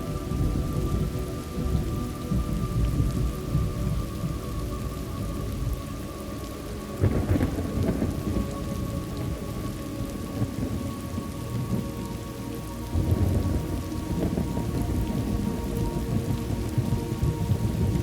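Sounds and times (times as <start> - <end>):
steady rain: 0.0 - 18.0
rolling thunder: 7.0 - 11.9, 12.9 - 18.0.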